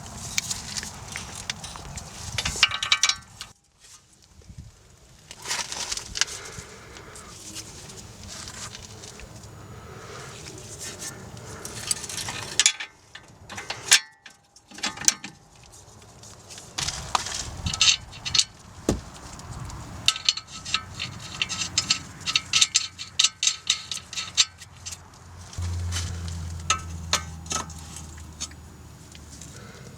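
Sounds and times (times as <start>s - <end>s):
metal tools clinking and rattling: 1.2s - 3.5s, 20.1s - 25.0s, 25.6s - 28.6s.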